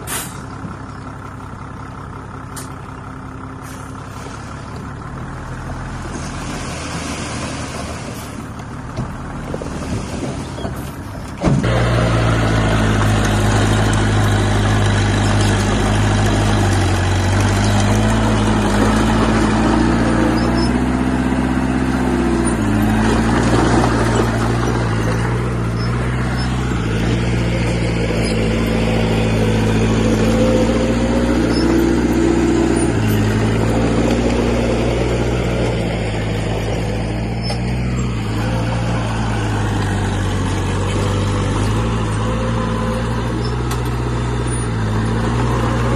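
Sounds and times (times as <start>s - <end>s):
diesel engine under load: 0.0s - 45.9s.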